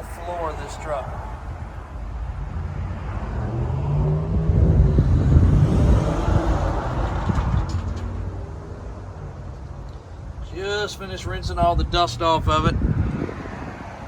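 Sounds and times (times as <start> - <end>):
vehicle engine passing by: 1.0 - 9.8.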